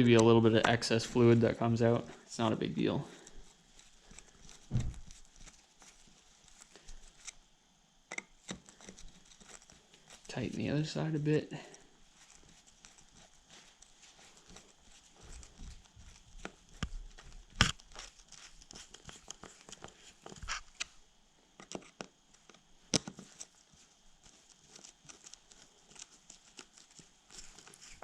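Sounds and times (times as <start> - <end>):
screwdriver clicks and taps: 8.1 - 8.6, 21.6 - 23.2.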